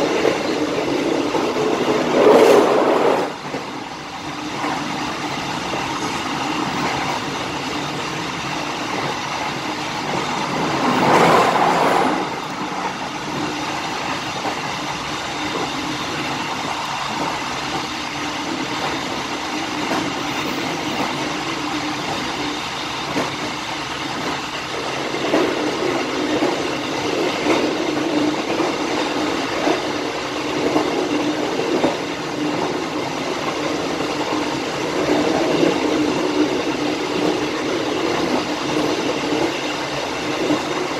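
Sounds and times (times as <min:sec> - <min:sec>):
loud rush of train: 0:00.0 - 0:40.9
train wheels rumbling on rails: 0:00.0 - 0:40.9.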